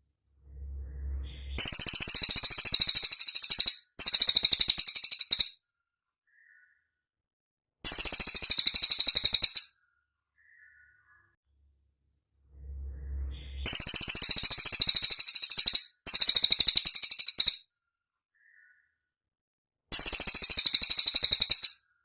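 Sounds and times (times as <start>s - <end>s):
bird high-pitched trills: 0.5s - 5.6s, 7.9s - 9.7s, 12.6s - 17.6s, 19.9s - 21.8s.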